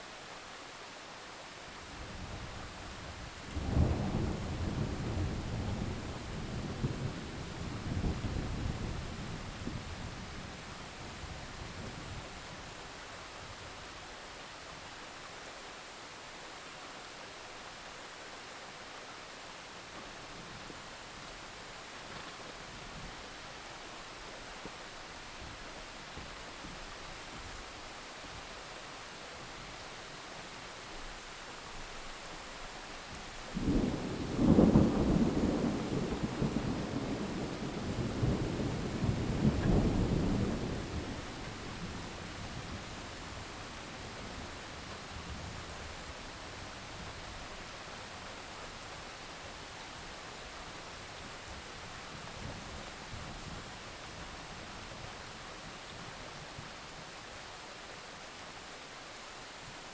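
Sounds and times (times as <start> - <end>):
steady rain: 0.0 - 59.9
thunder rumbling: 33.6 - 44.5.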